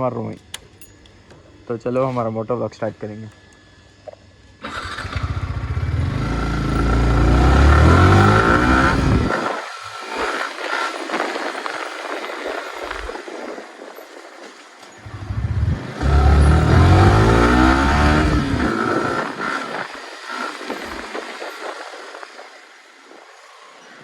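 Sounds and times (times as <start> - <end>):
motorcycle engine: 4.6 - 13.1, 14.8 - 23.8
wind noise: 4.6 - 23.7.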